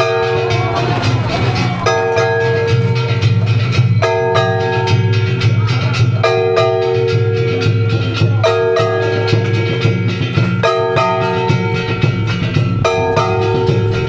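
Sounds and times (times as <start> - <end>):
drum and gong beat: 0.0 - 14.0
held pitched notes: 9.7 - 14.0.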